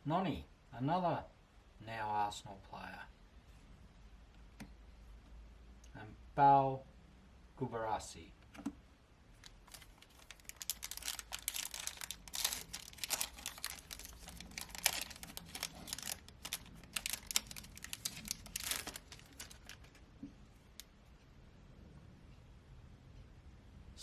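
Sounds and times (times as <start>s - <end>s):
foil wrapper tearing and crinkling: 9.4s - 20.0s.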